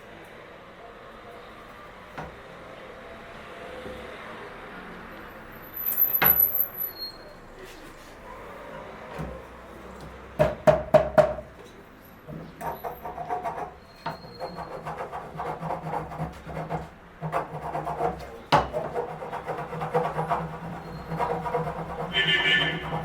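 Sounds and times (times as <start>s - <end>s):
sharp knocks on wood: 10.4s - 11.4s, 18.5s - 18.9s
rasping strokes on wood: 12.6s - 23.0s.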